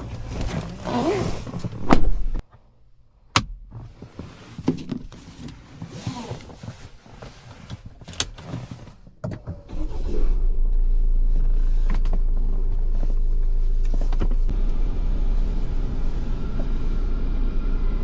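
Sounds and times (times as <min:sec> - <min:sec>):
car engine low rumble: 0:05.1 - 0:18.0.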